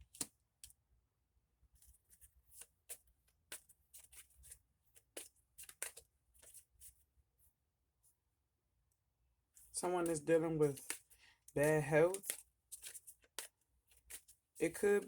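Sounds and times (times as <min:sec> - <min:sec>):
cards flicking and sliding: 0:00.0 - 0:00.3, 0:02.6 - 0:06.6, 0:10.0 - 0:15.0.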